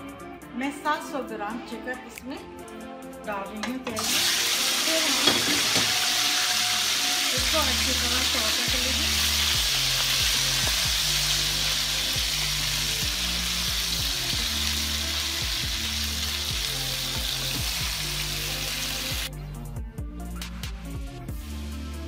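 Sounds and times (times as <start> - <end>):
quiet background music: 0.0 - 22.0
chicken sizzling in hot oil: 4.0 - 19.3.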